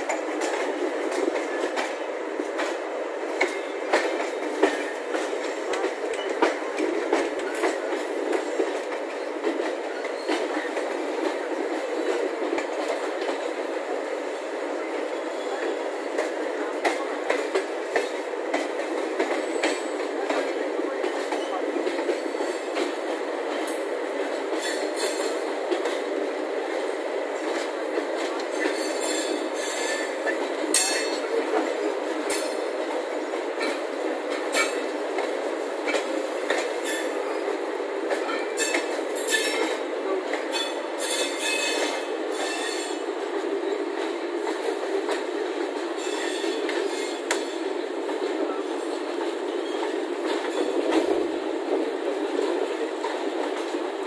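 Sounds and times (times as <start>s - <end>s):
rail joint clicks: 0.0s - 54.0s
train rolling on track: 0.0s - 54.0s
train wheel squeals: 9.9s - 10.6s, 28.6s - 31.2s, 38.3s - 39.7s, 40.5s - 43.0s, 46.0s - 47.6s.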